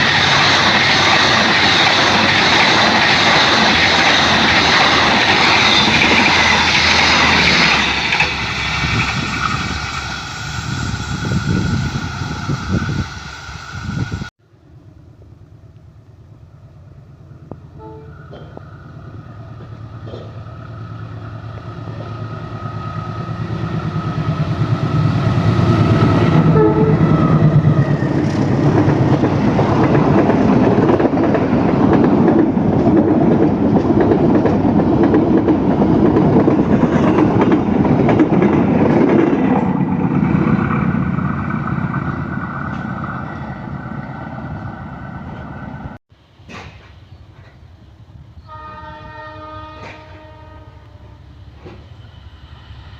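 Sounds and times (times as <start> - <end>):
train wheels clattering on rails: 0.0 - 10.2, 18.1 - 43.2, 46.4 - 47.6, 49.7 - 50.3, 51.5 - 52.0
locomotive engine passing: 0.0 - 46.0
train horn: 17.7 - 18.6, 25.6 - 27.7, 48.4 - 51.4.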